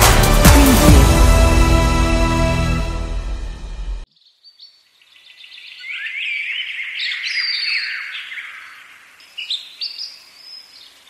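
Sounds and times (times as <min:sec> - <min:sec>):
birds chirping and singing: 0:04.2 - 0:11.0.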